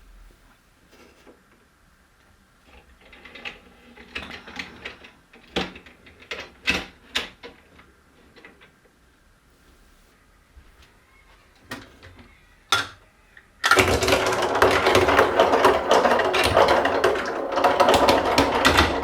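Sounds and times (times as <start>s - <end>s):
marbles clattering through marble run: 13.6s - 19.0s.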